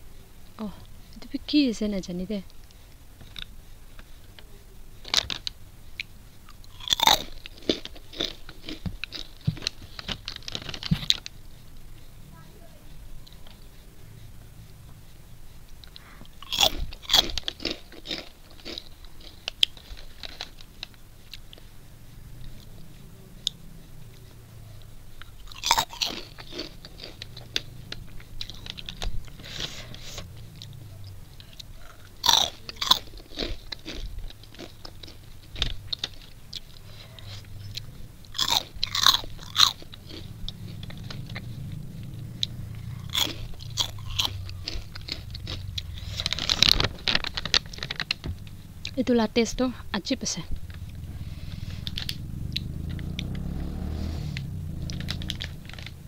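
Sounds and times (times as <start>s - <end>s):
quiet chewing: 2.3s - 56.0s
loud sharp snack crunches: 5.0s - 11.3s, 15.7s - 21.7s, 25.3s - 30.8s, 31.5s - 41.5s, 42.4s - 48.2s.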